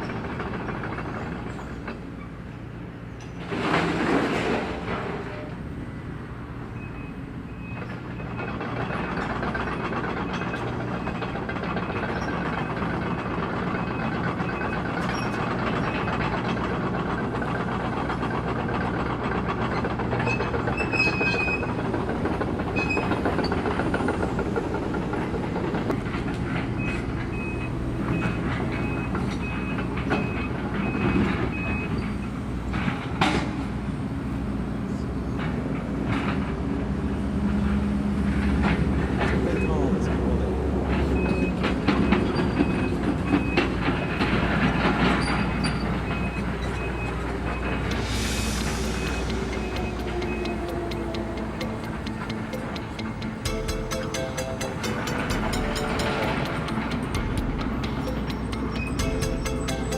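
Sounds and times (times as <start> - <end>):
excavator diesel engine: 0.0 - 59.9
metal clatter and scrape: 3.2 - 5.6
high evenly spaced beeping: 47.8 - 59.9.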